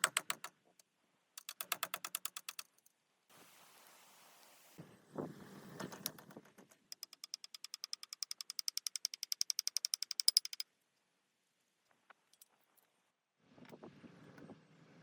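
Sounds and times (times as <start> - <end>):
rapid sharp clicks: 1.4 - 2.8, 6.1 - 10.6
scattered ticks: 6.9 - 10.6.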